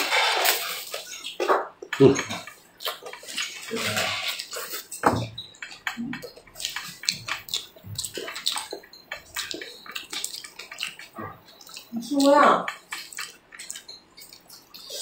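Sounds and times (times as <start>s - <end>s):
wet chewing and lip-smacking: 0.4s - 15.0s.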